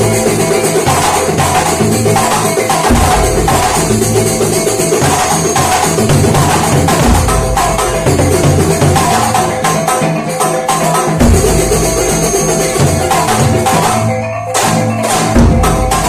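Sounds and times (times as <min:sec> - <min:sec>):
frame drums beating rhythm: 0:00.0 - 0:16.0
deep drum thumps: 0:02.9 - 0:04.3.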